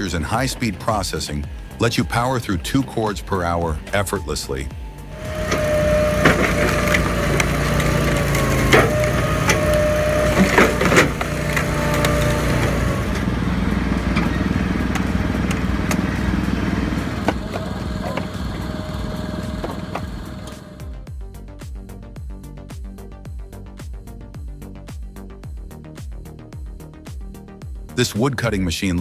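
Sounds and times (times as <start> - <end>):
steady machine whine: 0.0 - 21.5
firewood processor engine running: 5.1 - 21.0
wood cracking and splitting: 5.3 - 13.4.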